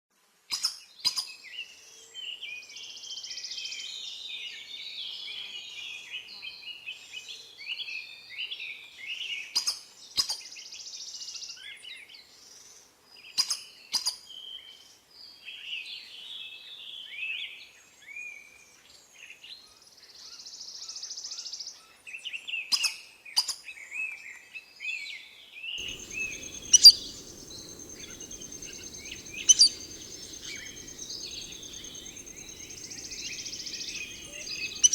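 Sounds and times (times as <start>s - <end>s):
birds calling and chirping: 25.8s - 34.9s.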